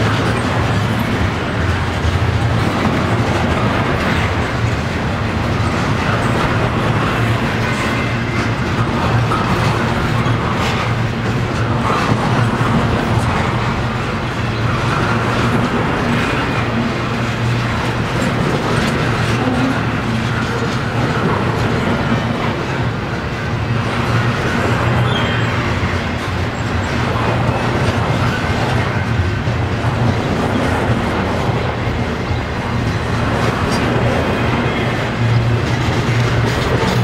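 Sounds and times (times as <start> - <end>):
train wheels rumbling on rail: 0.0 - 37.0
wheels clicking over rail joints: 0.0 - 37.0.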